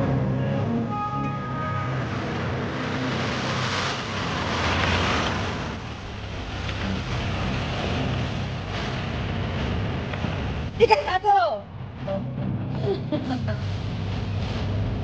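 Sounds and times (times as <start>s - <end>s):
off-road vehicle engine under load: 0.0s - 11.0s.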